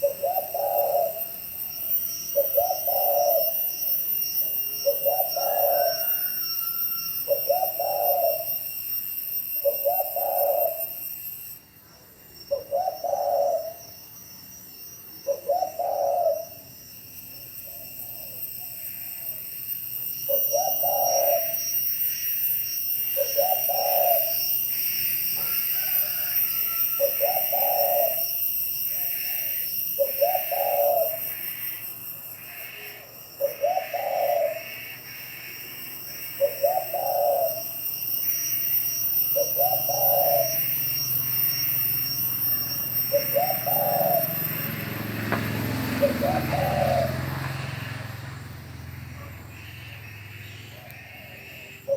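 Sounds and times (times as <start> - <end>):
dove cooing: 0.0 - 3.6, 4.8 - 8.6, 9.6 - 11.0, 12.5 - 13.9, 15.2 - 16.7, 20.3 - 21.6, 23.2 - 24.4, 25.4 - 31.6, 32.4 - 35.4, 36.1 - 37.8, 39.3 - 40.7, 43.1 - 51.9.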